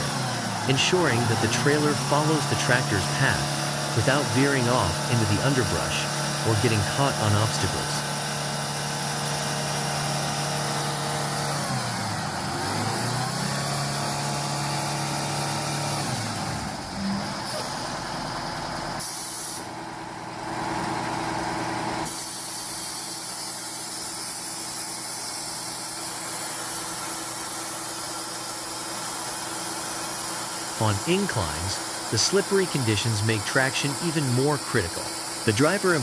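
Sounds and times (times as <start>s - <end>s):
truck engine revving: 0.0s - 18.9s.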